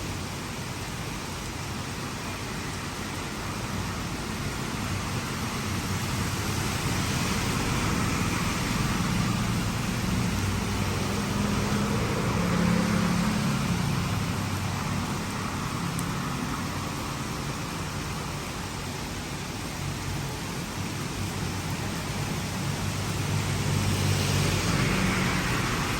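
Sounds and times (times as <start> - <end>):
heavy rain: 0.0 - 25.9
vehicle engine passing: 6.6 - 16.3, 22.5 - 25.9.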